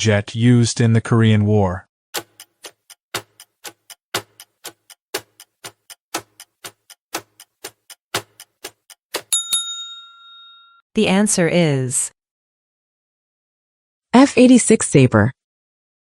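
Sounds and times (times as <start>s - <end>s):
quick clicks: 2.2s - 9.3s
clock ticking: 2.2s - 9.5s
bell ding: 9.3s - 10.8s.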